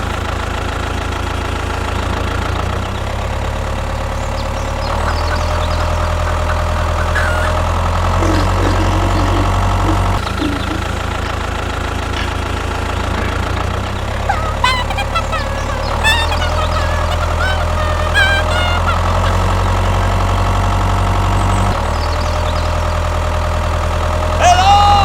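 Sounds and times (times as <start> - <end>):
tractor engine idling: 0.0 - 14.3.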